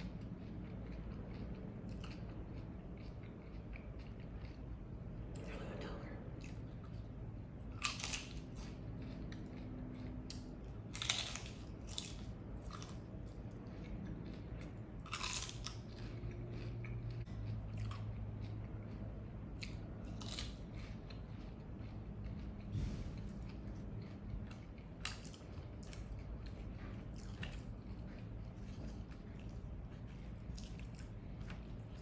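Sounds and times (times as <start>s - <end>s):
quiet chewing: 0.0s - 32.0s
crunching bites of fried tortilla: 7.6s - 32.0s.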